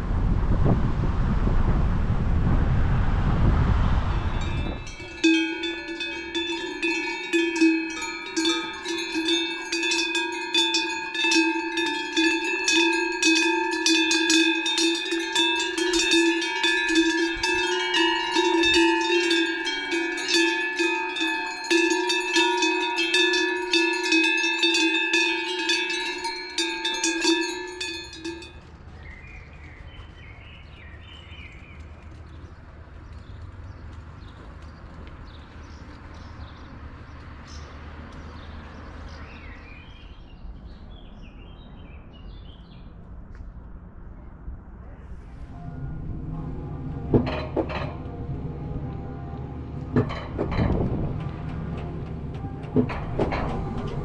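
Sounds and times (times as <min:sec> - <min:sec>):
wind buffeting microphone: 0:00.0 - 0:24.4, 0:43.1 - 0:54.0
small metal bells jingling: 0:04.4 - 0:28.7.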